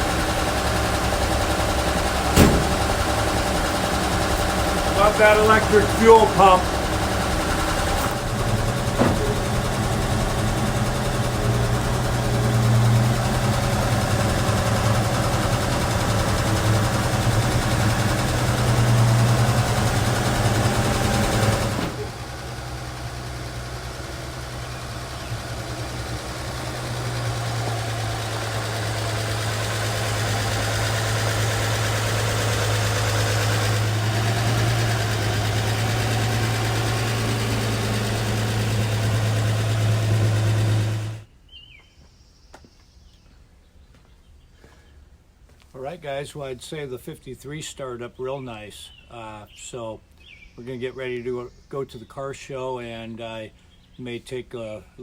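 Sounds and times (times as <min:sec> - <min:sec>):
truck engine idling: 0:00.0 - 0:41.3.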